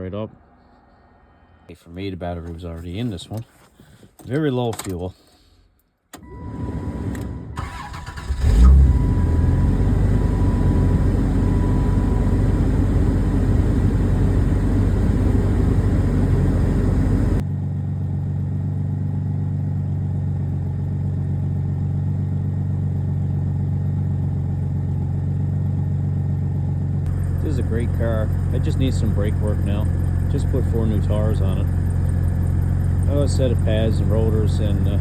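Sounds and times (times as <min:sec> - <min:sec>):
car engine running rough: 0:06.2 - 0:35.0
starter motor cranking: 0:07.1 - 0:14.6.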